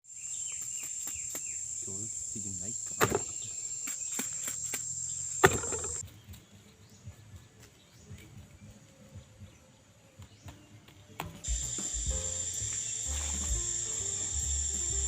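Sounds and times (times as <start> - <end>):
insects droning shrilly: 0.1 - 6.0, 11.4 - 15.0
sharp knocks: 3.0 - 3.4, 5.4 - 6.0.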